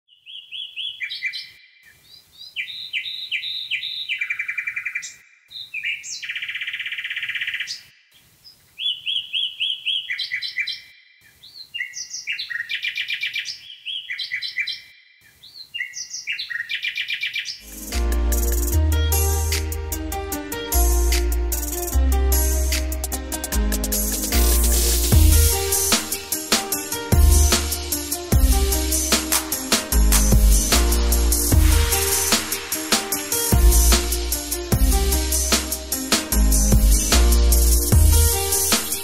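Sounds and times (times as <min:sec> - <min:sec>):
songbird singing: 0:00.0 - 0:17.6
music with low bass line: 0:17.6 - 0:39.0.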